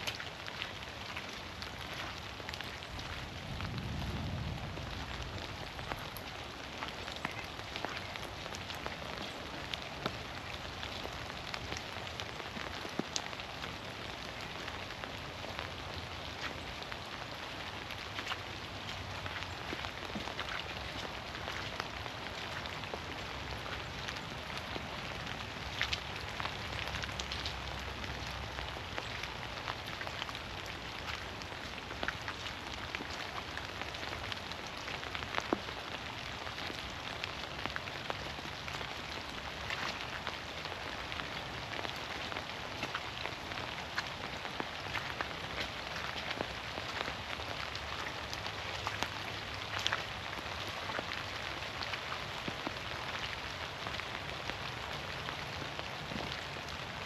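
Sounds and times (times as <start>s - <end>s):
drops ticking on leaves: 0.0s - 57.0s
rain falling through trees: 0.0s - 57.0s.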